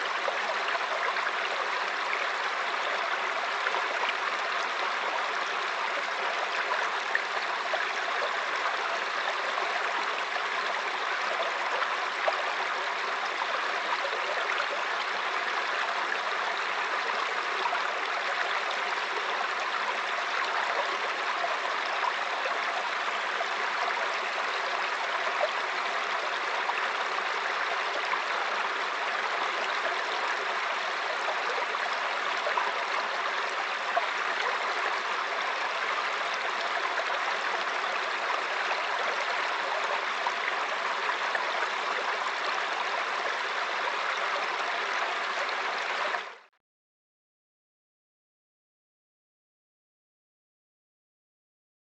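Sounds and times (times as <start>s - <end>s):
stream flowing over stones: 0.0s - 46.5s.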